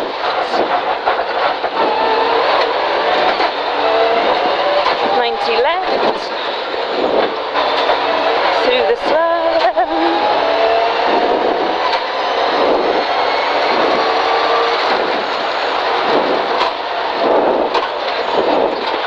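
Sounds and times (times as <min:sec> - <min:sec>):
rally car engine: 0:00.0 - 0:19.0
road and wind noise: 0:00.0 - 0:19.0.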